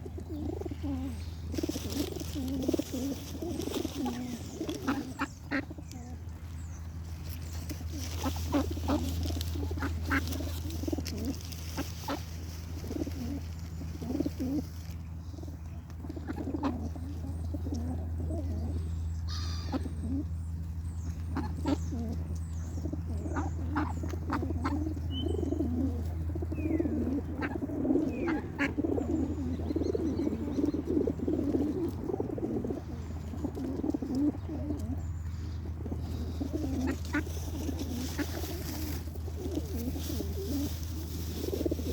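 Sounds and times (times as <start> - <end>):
birds warbling: 0.0 - 41.9
steady low hum: 0.0 - 41.9
bird chirps and clicks: 15.6 - 16.6, 20.6 - 24.2.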